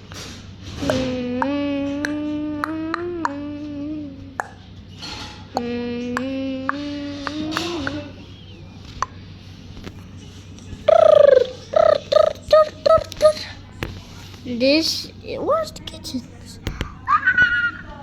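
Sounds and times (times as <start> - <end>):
person humming: 0.8 - 4.6, 5.5 - 8.4, 10.8 - 13.6.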